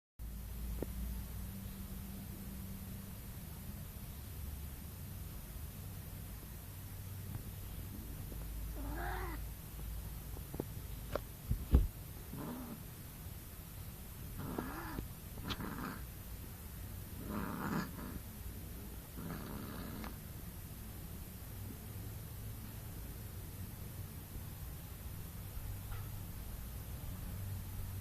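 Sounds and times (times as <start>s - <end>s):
cat yowling: 8.8s - 9.4s, 14.4s - 16.0s
loud thump: 11.5s - 11.9s.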